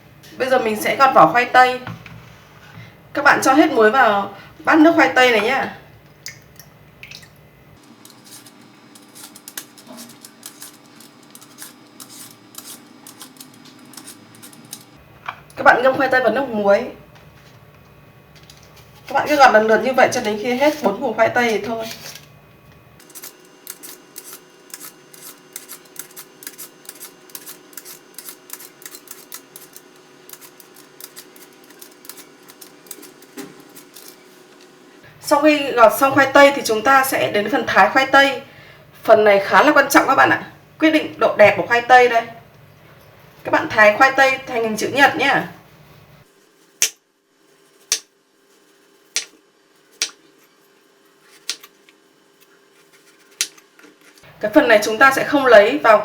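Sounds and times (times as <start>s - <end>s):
peeler scraping potato skin: 7.8s - 15.0s, 23.0s - 34.7s.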